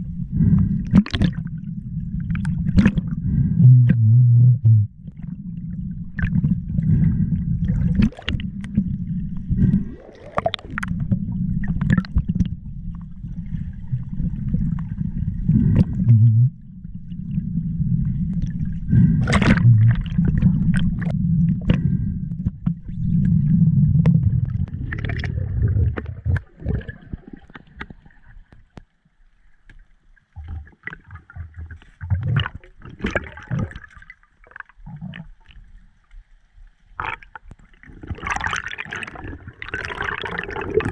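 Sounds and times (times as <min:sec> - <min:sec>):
steady low rumble: 0:00.0 - 0:27.2
water gurgling: 0:00.0 - 0:28.9, 0:29.6 - 0:36.1, 0:36.8 - 0:40.9.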